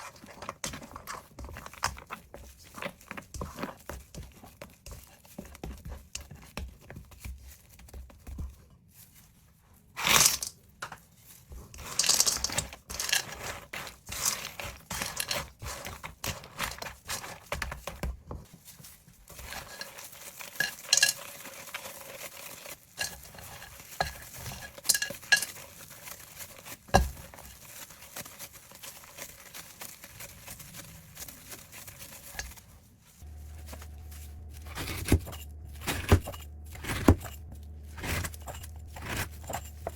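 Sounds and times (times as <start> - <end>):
metal utensils scraping a pot: 19.3 - 27.5, 33.2 - 39.9
low hum: 33.2 - 39.9.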